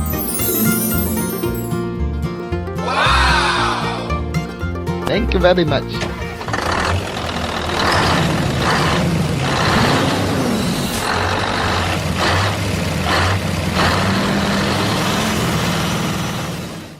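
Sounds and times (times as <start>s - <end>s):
engine humming: 5.8s - 16.9s.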